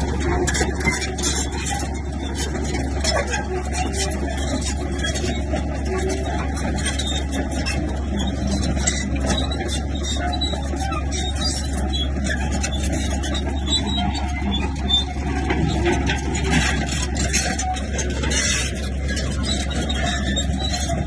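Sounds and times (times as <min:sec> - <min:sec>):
bulldozer diesel engine running: 0:00.0 - 0:21.0
knocks and clatter: 0:00.0 - 0:21.0.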